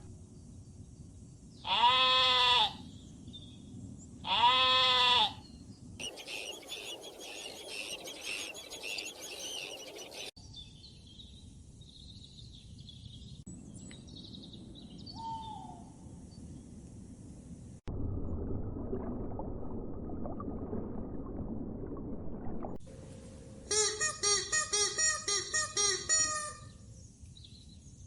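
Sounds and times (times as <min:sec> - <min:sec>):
animal bleat: 0:01.6 - 0:02.8, 0:04.2 - 0:05.4
scattered bird calls: 0:05.4 - 0:10.4
high chirping birds: 0:05.4 - 0:15.6
low falling bird call: 0:06.0 - 0:10.4.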